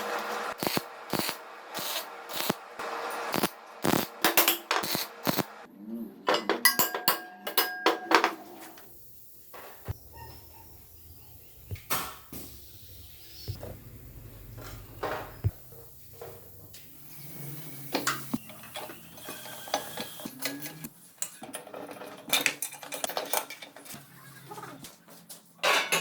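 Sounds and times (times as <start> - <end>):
metal tools clinking: 6.3 - 8.9.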